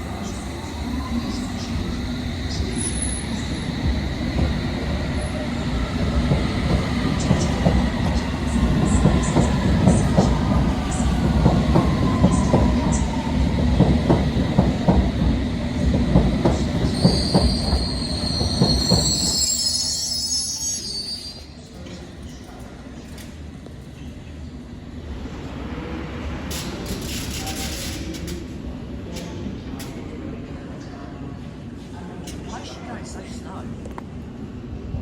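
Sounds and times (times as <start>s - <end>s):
train wheels rumbling on rails: 0.0s - 20.2s
high wheel squeal: 16.9s - 21.4s.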